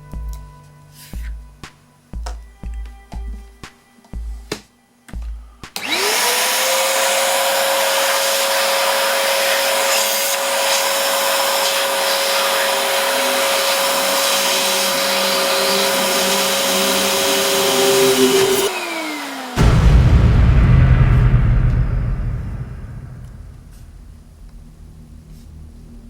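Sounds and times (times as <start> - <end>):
quadcopter propellers whirring: 12.5 - 19.6.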